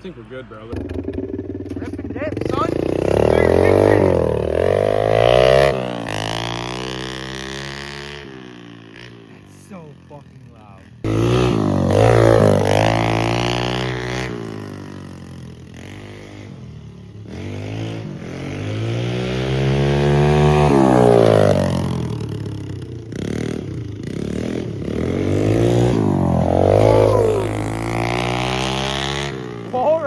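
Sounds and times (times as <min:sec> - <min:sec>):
loud motorcycle engine revving: 0:00.6 - 0:30.0.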